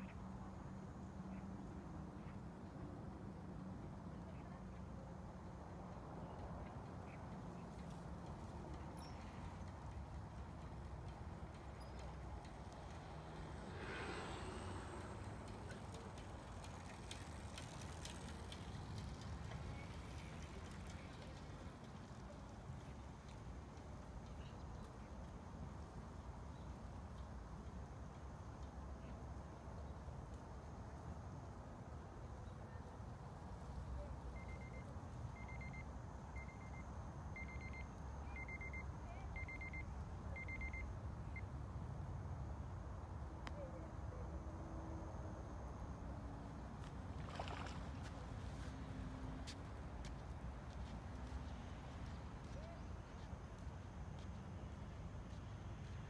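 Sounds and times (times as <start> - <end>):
short electronic beeps: 35.4 - 36.8, 37.4 - 39.8, 40.4 - 40.9.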